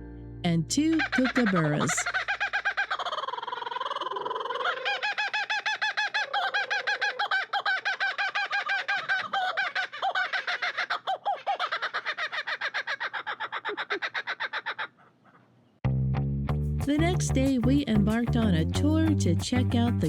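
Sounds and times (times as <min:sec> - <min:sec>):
kookaburras laughing: 0:00.8 - 0:15.5.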